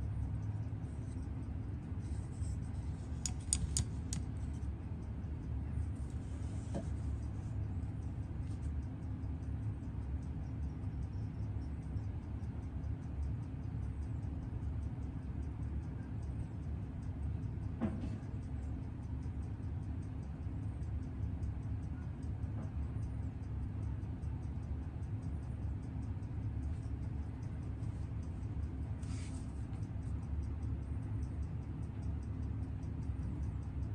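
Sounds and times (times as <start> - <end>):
steady low hum: 0.0 - 33.9
watch movement ticking fast: 0.1 - 5.1, 18.3 - 33.9
sharp click: 3.2 - 4.5.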